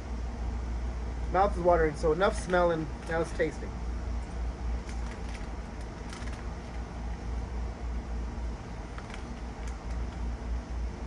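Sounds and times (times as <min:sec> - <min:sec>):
crunchy snacks being chewed: 0:04.8 - 0:06.8.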